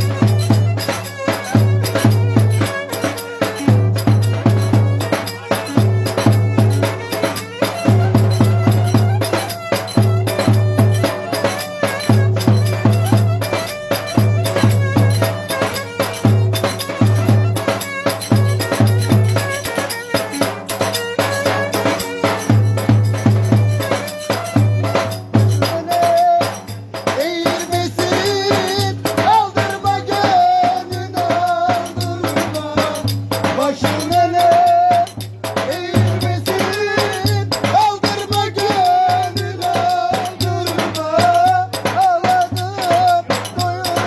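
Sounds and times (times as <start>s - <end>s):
fast folk percussion rhythm: 0.0s - 44.0s
instrumental melody line: 0.0s - 44.0s.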